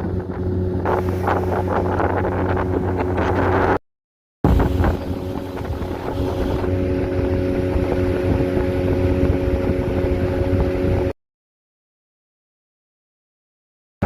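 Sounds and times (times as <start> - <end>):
motorboat engine running: 0.0 - 3.8, 4.5 - 11.1
wind buffeting microphone: 0.0 - 3.8, 4.4 - 11.1.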